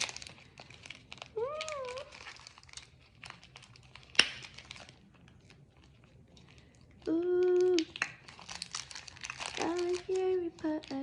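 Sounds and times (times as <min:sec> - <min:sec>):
plastic packaging crinkling: 0:00.0 - 0:11.0
person humming: 0:07.0 - 0:07.9.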